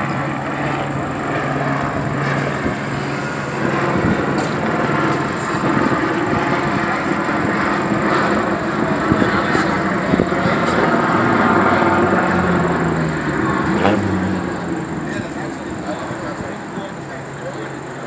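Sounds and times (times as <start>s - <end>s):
engine hum: 0.0s - 18.0s
traffic: 0.0s - 18.0s.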